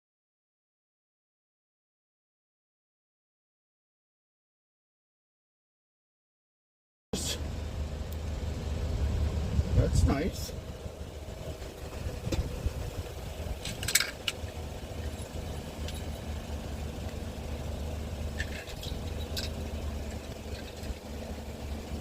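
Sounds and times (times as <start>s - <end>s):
car engine and road noise: 7.2s - 22.0s
light clicks and rattles: 13.4s - 16.4s, 18.3s - 21.0s.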